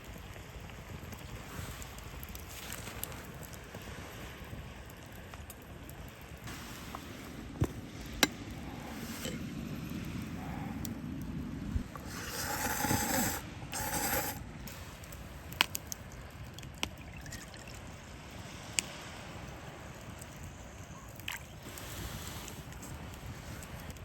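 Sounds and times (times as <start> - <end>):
campfire crackling and popping: 0.0 - 24.0
short hissing bursts: 11.8 - 15.5.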